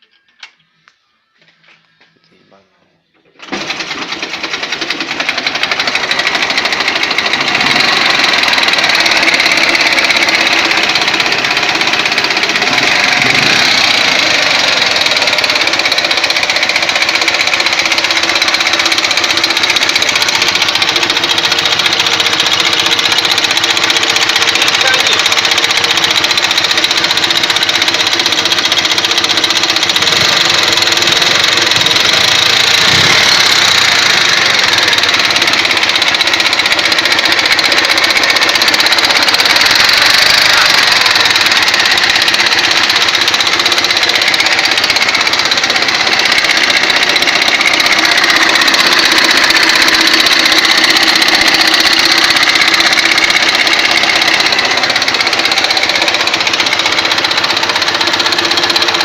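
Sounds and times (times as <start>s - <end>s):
motorcycle engine with knock: 4.4s - 59.0s.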